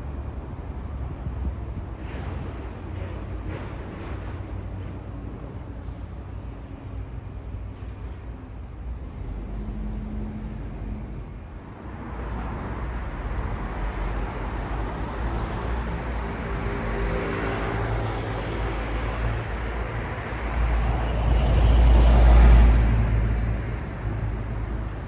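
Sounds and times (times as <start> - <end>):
road traffic rumble: 0.0 - 25.0
vehicle passing close: 13.2 - 25.0.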